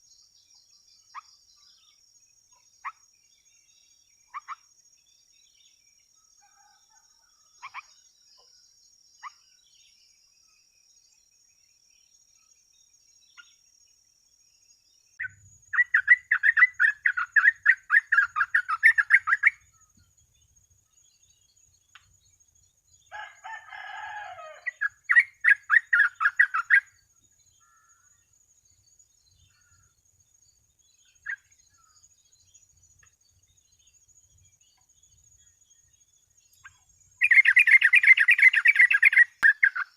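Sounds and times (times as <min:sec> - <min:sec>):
bird chattering song: 0:00.0 - 0:04.7, 0:09.2 - 0:10.6, 0:15.1 - 0:22.6, 0:24.6 - 0:39.9
single bird chirps: 0:36.6 - 0:39.9.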